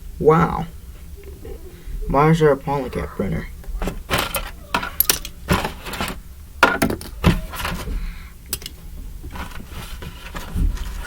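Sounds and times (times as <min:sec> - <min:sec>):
plastic parts clicking and knocking: 0:03.6 - 0:11.0.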